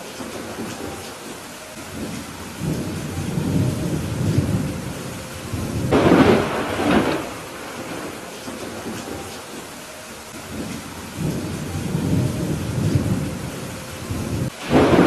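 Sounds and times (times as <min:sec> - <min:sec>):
steady rain: 0:00.0 - 0:15.0
thunder rumbling and clapping: 0:01.9 - 0:09.3, 0:10.5 - 0:15.0.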